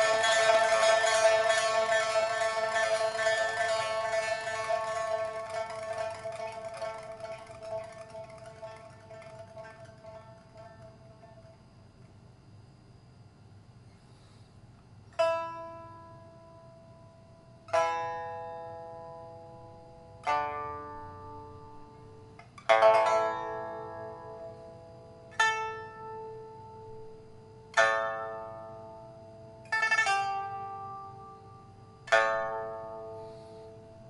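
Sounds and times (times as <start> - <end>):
pipa plucked notes and chords: 0.0 - 11.6, 17.7 - 19.4, 20.0 - 34.0.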